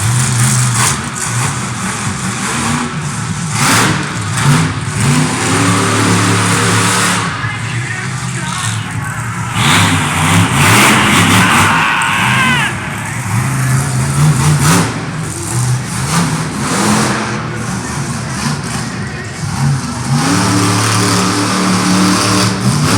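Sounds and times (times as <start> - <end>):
monster truck engine revving: 0.0 - 22.9
loud rushing noise: 4.6 - 19.2.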